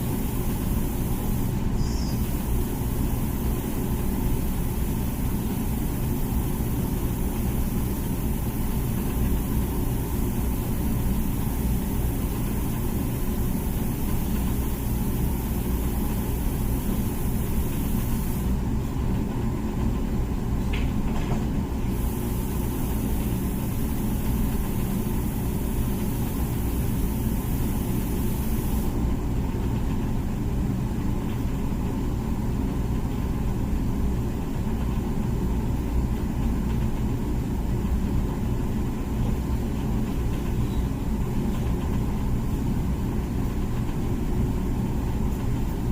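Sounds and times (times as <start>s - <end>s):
dishwasher high hiss: 0.0s - 18.7s, 21.8s - 29.2s
dishwasher motor hum: 0.0s - 45.9s.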